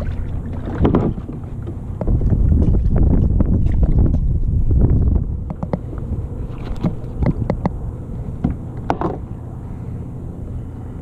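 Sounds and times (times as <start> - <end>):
steady low hum: 0.0 - 11.0
knocks and clicks of gear: 5.1 - 6.0, 6.6 - 7.8, 8.4 - 9.2.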